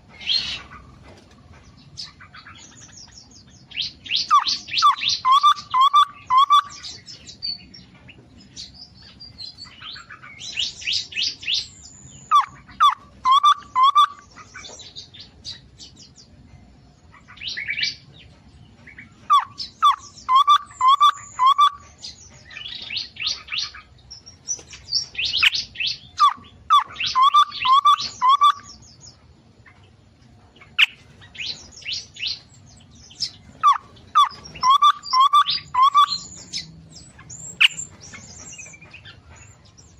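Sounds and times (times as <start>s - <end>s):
high bird twittering: 2.0s - 7.7s, 8.6s - 15.0s, 19.2s - 29.2s, 30.6s - 39.6s
songbirds whistling phrases: 3.7s - 7.6s, 9.9s - 14.6s, 19.2s - 23.8s, 24.6s - 29.2s, 30.8s - 39.2s.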